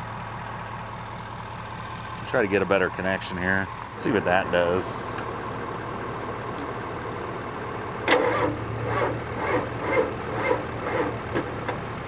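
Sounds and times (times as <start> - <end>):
steady engine hum: 0.0 - 12.0
diesel engine starter cranking: 4.0 - 12.0.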